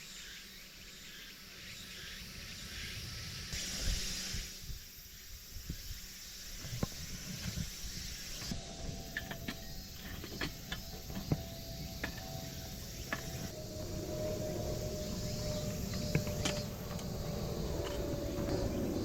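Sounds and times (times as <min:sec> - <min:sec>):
faint steady hum: 0:00.0 - 0:19.0
low outdoor rumble: 0:08.5 - 0:19.0.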